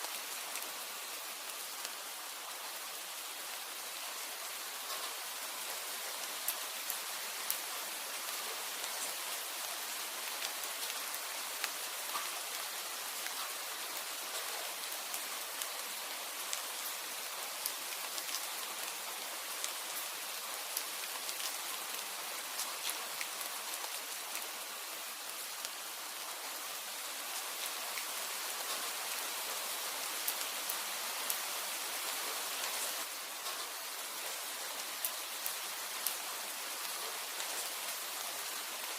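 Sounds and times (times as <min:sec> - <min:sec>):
steady rain falling: 0:00.0 - 0:38.9
raindrops ticking: 0:10.1 - 0:24.6.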